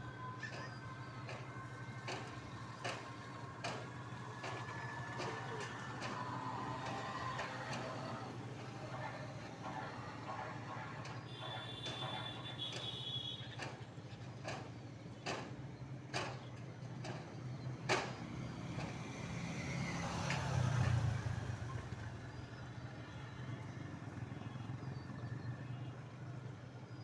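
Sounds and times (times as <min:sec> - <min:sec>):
motor running steadily: 0:00.0 - 0:13.0.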